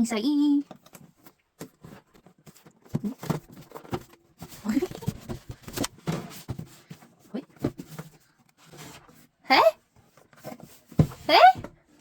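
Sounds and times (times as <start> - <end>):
box being handled and opened: 0.6 - 12.0
packaging rustling: 0.8 - 6.9.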